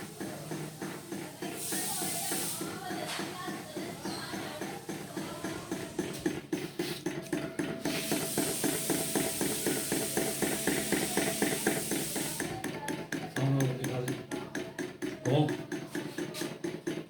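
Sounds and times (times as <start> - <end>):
fan mechanism ticking: 0.0 - 17.0
steady hiss: 7.8 - 12.5.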